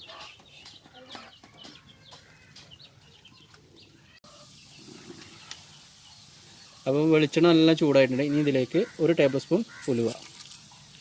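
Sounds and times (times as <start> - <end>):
chickens clucking: 0.0 - 6.8
faint steady hiss: 4.3 - 11.0.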